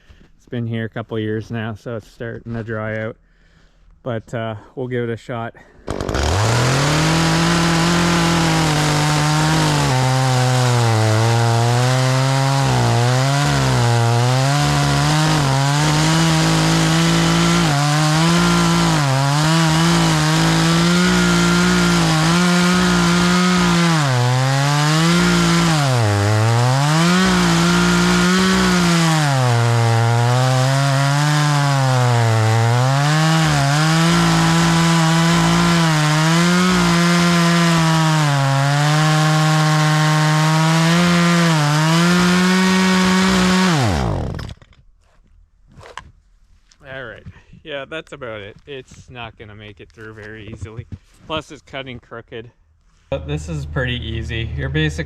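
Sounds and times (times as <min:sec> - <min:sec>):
chainsaw cutting log: 0:05.8 - 0:44.7.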